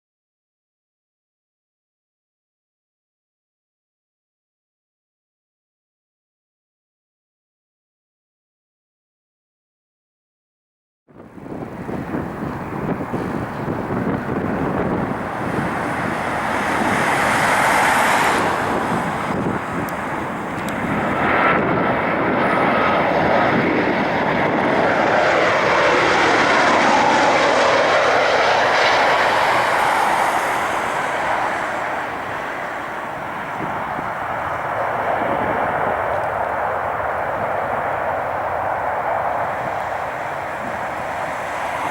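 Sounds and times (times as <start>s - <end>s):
jet engines rushing: 11.4s - 41.9s.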